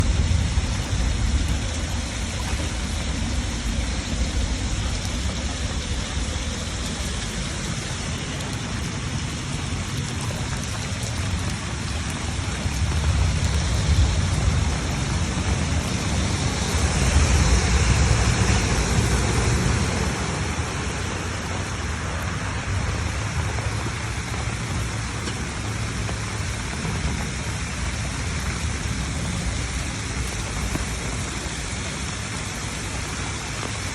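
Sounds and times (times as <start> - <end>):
rain: 0.0 - 33.9
rushing floodwater: 0.0 - 33.9.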